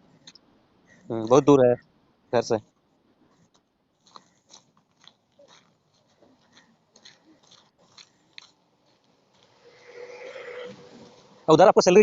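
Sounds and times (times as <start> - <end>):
faint small clicks and ticks: 3.4 - 9.5.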